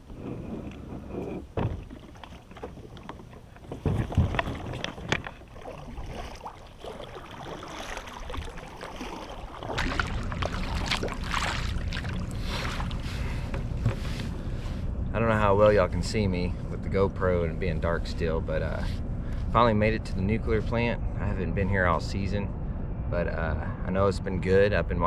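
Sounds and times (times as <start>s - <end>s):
paddle splashing in water: 1.6s - 14.2s.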